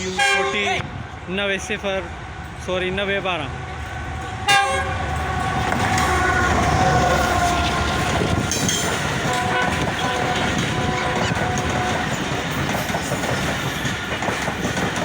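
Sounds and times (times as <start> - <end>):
train horn: 0.0 - 0.8, 4.4 - 8.1, 9.2 - 12.2
train wheels rumbling and clattering: 0.0 - 15.0.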